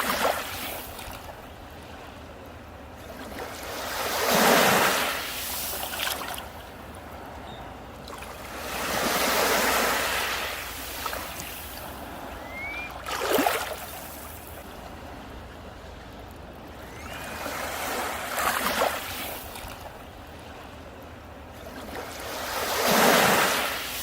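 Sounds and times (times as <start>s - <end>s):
sea waves breaking on beach: 0.0s - 24.0s
brief rising whistle: 12.3s - 13.6s, 16.8s - 17.7s.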